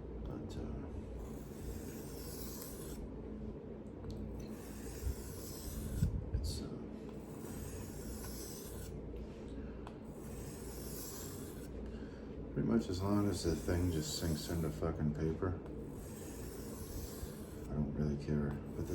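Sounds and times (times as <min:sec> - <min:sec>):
knife scraping on sharpening stone: 0:01.2 - 0:03.0, 0:04.4 - 0:06.1, 0:07.3 - 0:08.9, 0:10.1 - 0:11.7, 0:15.9 - 0:17.7.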